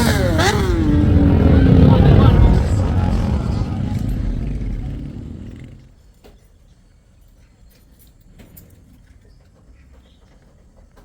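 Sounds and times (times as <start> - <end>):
vehicle engine rumble: 0.0 - 6.0.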